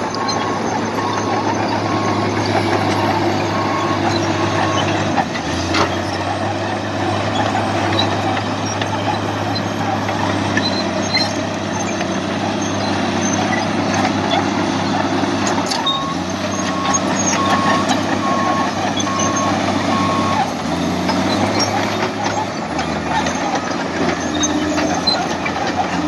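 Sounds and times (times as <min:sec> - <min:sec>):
reversing alarm beeps: 0:00.0 - 0:05.1, 0:15.7 - 0:20.5
truck engine running: 0:00.0 - 0:26.0.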